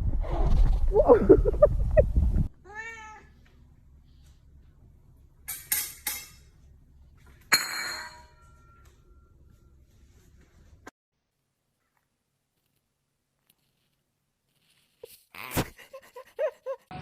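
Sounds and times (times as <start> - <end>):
scraping or rustling: 0.0 - 1.1.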